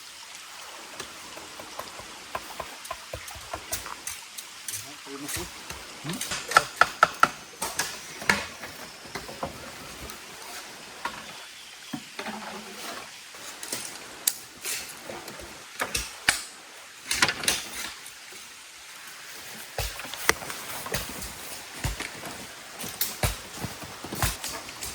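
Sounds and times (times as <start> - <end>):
sharp knocks and clicks: 1.5 - 8.5.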